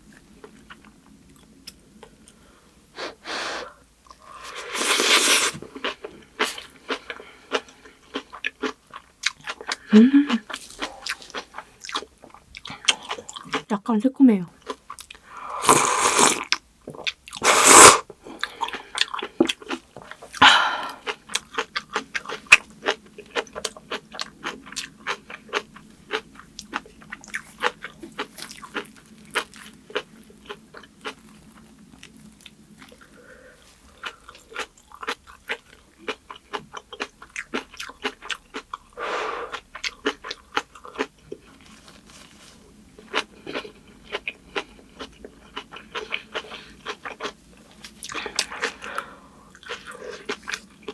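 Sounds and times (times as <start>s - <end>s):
crisp chewing crunches: 21.0s - 38.9s.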